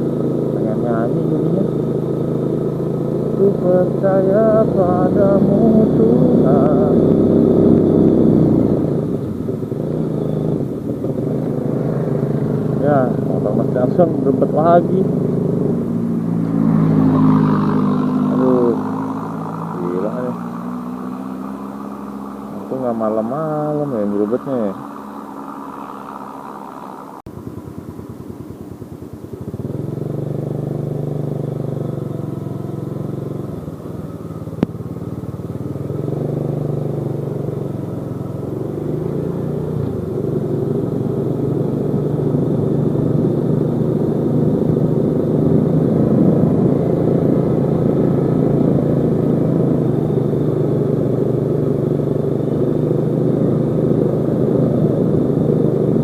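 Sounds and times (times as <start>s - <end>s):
engine stuttering: 0.0s - 33.5s
motorcycle engine running: 0.0s - 56.0s.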